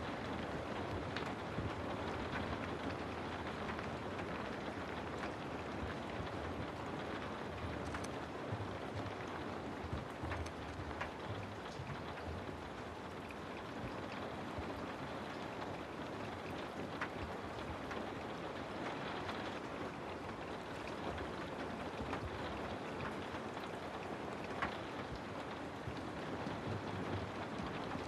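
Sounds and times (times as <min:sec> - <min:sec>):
steady rain hiss: 0:00.0 - 0:28.0
drops ticking on a surface: 0:07.5 - 0:18.1.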